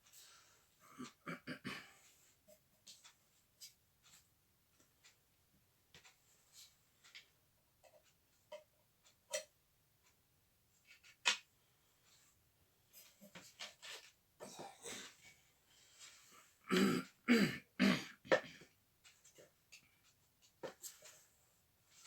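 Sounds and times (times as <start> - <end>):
person clearing throat: 0.8 - 2.0, 14.4 - 15.2, 16.7 - 18.6.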